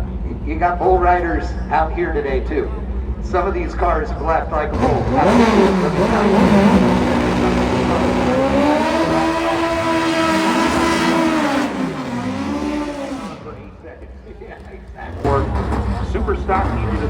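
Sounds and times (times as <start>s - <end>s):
car engine revving: 4.2s - 17.0s.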